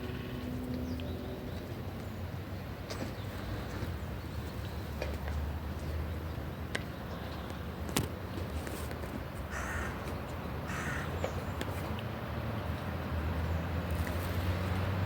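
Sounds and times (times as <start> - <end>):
bird cawing: 9.5 - 10.0, 10.6 - 11.2.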